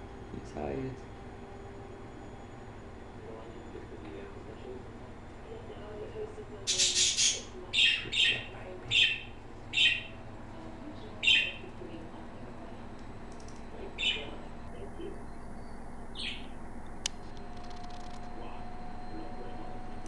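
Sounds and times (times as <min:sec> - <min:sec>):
parrot high chirps: 0:06.7 - 0:10.1, 0:11.2 - 0:11.6, 0:16.2 - 0:16.5.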